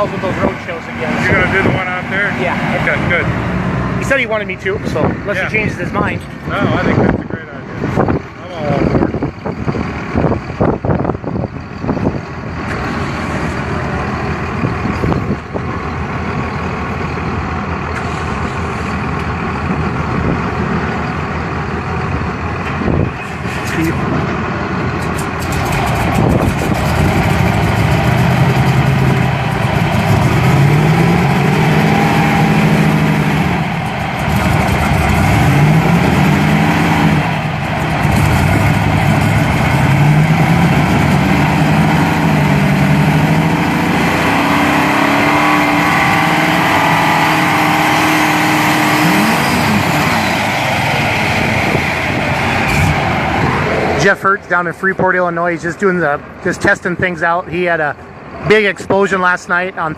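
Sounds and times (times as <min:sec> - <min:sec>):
tractor engine revving: 0:00.0 - 0:59.9.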